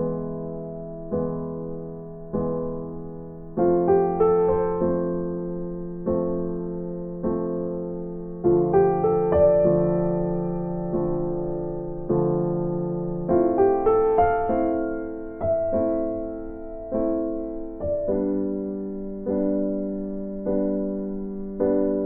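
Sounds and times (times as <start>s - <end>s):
soft electric piano chords: 0.0s - 22.0s.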